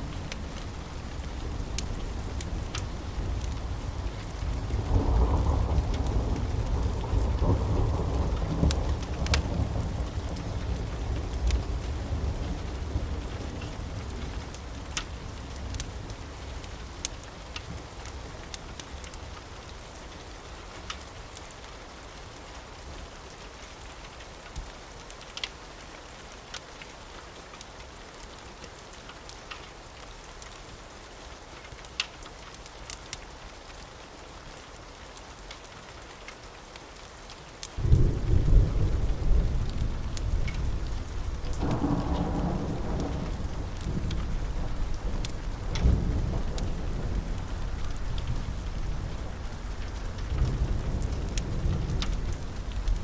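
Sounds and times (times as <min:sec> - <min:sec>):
steady rain: 0:00.0 - 0:53.0
wood fire crackling: 0:00.0 - 0:53.0
thunder rolling: 0:37.8 - 0:53.0.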